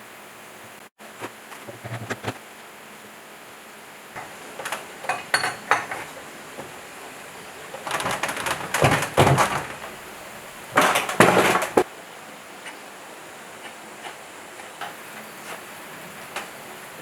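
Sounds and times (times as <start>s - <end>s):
metal parts clattering: 4.2s - 11.8s.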